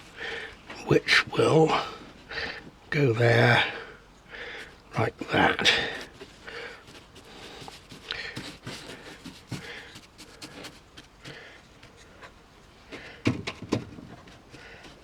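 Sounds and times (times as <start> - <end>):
soft paper rustles: 4.6 - 15.0.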